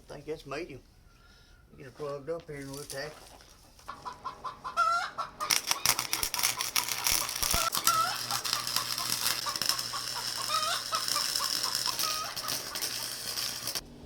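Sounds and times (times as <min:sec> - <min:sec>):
low electrical hum: 0:00.0 - 0:14.0
chickens clucking: 0:03.3 - 0:13.2
welder crackling sizzle: 0:05.4 - 0:14.0.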